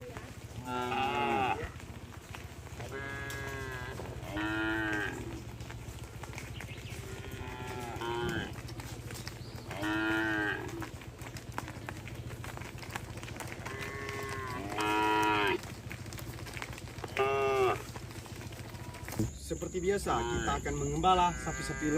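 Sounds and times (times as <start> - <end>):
cattle mooing: 0.6 - 1.8, 2.8 - 5.8, 6.9 - 8.8, 9.6 - 11.0, 13.6 - 15.7, 17.1 - 18.0, 20.2 - 21.9.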